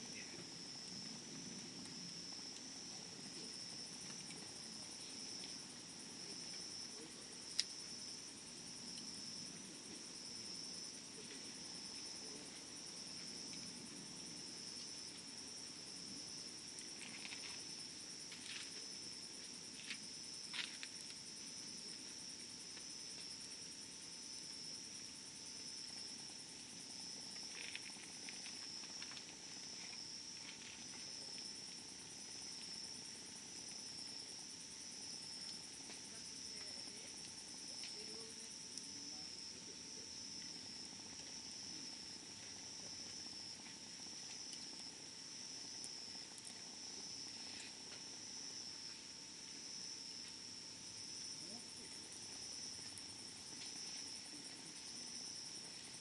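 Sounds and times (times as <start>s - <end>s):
insect chirring: 0.0s - 56.0s
campfire crackling and popping: 0.4s - 10.9s, 12.8s - 13.7s, 25.5s - 39.5s, 40.1s - 48.8s, 50.9s - 54.7s.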